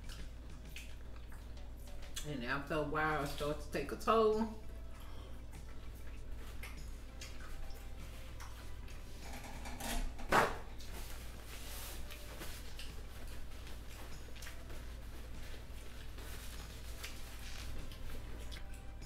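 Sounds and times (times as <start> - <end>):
person chewing with wet clicks: 0.0 - 2.4, 4.6 - 9.2, 10.7 - 19.0
steady low hum: 0.0 - 19.0
paper towel rustling: 10.7 - 18.3.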